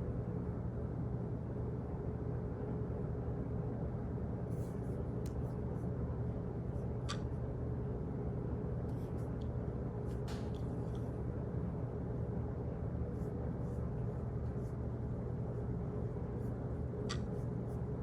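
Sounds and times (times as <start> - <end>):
low hum and rumble: 0.0 - 18.0
faint small clicks and taps: 7.0 - 7.3, 17.0 - 17.4.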